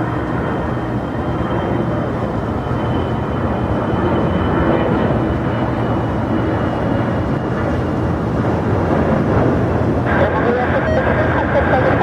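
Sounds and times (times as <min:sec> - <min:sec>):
jet engines rumbling: 0:00.0 - 0:12.0
faint high whine: 0:10.1 - 0:12.0.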